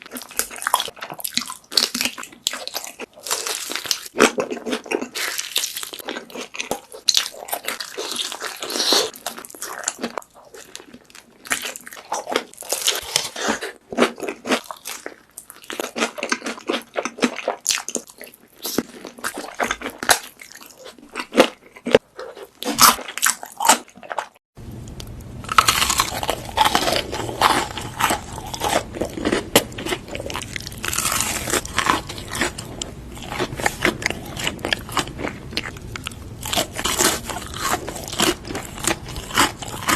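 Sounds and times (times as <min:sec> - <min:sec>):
crunching and chewing crispy food: 0:00.0 - 0:39.9
steady low hum: 0:24.6 - 0:39.9.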